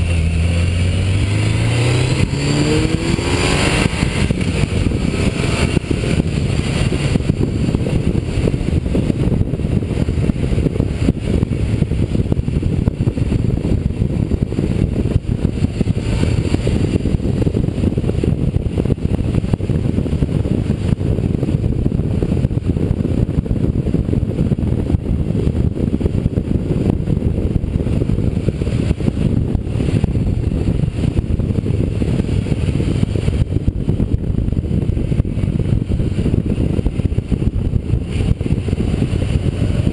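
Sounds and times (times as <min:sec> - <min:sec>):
motorcycle engine rumble: 0:00.0 - 0:39.9
wind rush: 0:00.0 - 0:39.9.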